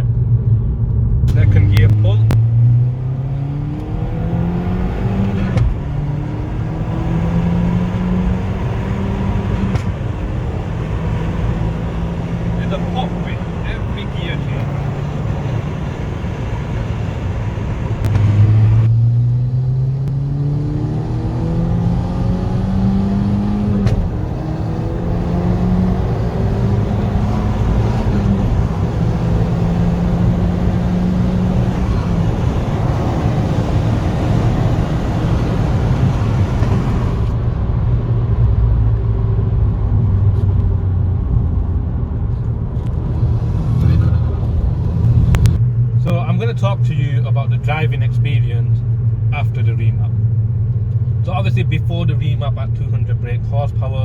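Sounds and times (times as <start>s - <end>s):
car engine accelerating: 0.0s - 54.0s
exhaust pops: 1.2s - 2.5s, 5.2s - 6.8s, 8.7s - 19.0s, 23.6s - 25.2s, 26.2s - 37.5s, 43.8s - 50.1s.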